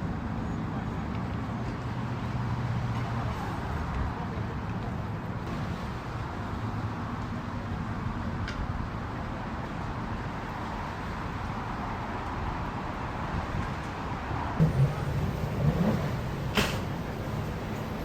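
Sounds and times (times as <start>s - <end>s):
outdoor background noise: 0.0s - 18.0s
boat engines idling: 14.6s - 18.0s.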